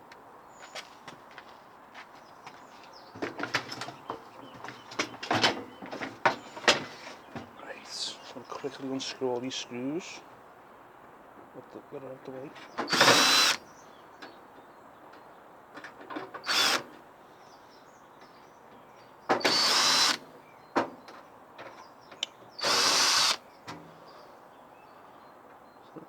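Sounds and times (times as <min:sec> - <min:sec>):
handling clicks and knocks: 0:02.5 - 0:07.5
power drill whirring: 0:12.9 - 0:13.6, 0:16.4 - 0:16.9, 0:19.4 - 0:20.2, 0:22.6 - 0:23.4.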